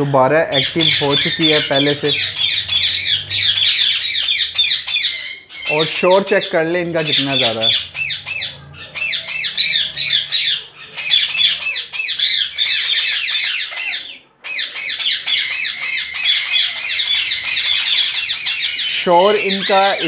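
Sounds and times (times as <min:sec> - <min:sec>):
parrots squawking and chattering: 0:00.0 - 0:20.0.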